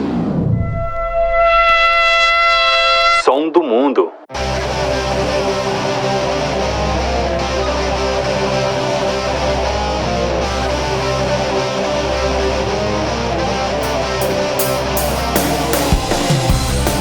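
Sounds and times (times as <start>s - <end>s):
distorted electric guitar music: 4.3s - 17.0s
steady bass: 4.4s - 17.0s
drum and cymbal hits: 13.8s - 17.0s.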